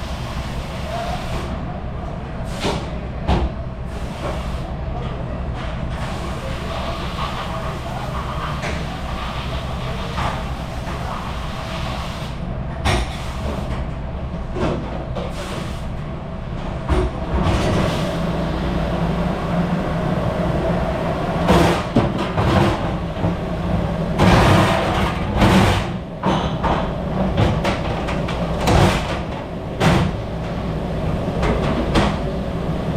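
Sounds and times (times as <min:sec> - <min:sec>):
dishes and racks clattering: 0:24.2 - 0:30.6.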